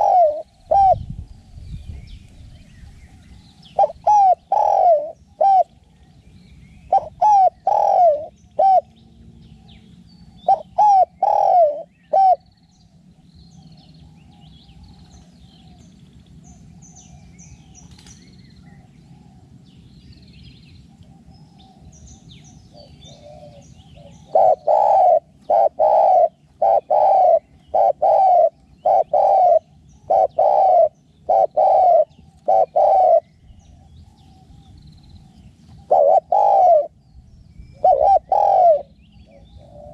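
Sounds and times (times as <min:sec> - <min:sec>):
dove cooing: 0:00.0 - 0:01.2, 0:03.7 - 0:05.8, 0:06.9 - 0:12.5, 0:22.7 - 0:37.0, 0:37.7 - 0:39.9.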